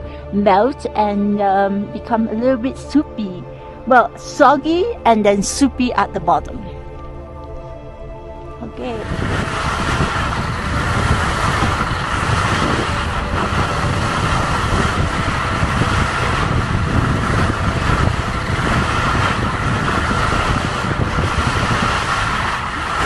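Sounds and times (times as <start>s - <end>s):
wind buffeting microphone: 7.5s - 23.0s
skis scraping over snow: 8.6s - 23.0s.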